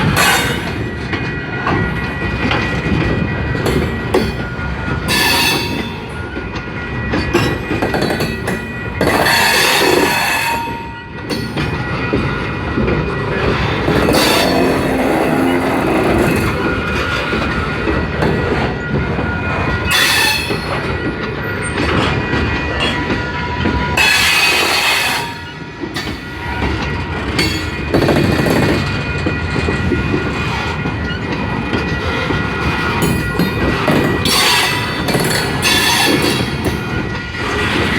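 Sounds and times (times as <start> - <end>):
train wheels rumbling on rails: 0.0 - 37.9
wheel squeal: 5.1 - 6.0, 13.4 - 17.4, 19.9 - 20.8, 27.4 - 36.8.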